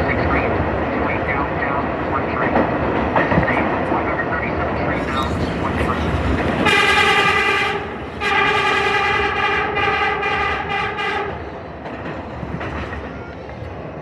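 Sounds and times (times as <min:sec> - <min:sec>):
train rumble and rail clatter: 0:00.0 - 0:14.0
subway train horn blasts: 0:05.1 - 0:11.5.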